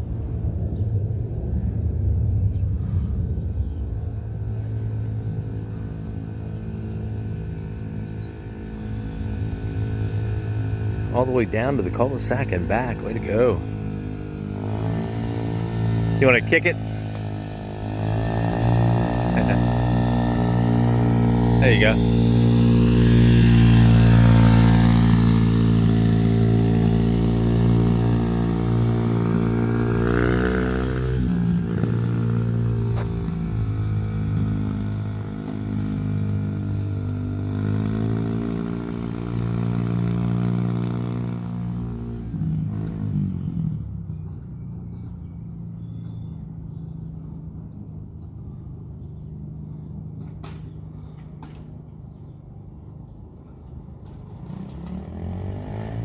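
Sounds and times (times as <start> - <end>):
dirt bike engine revving: 6.3 - 44.0, 54.4 - 56.0.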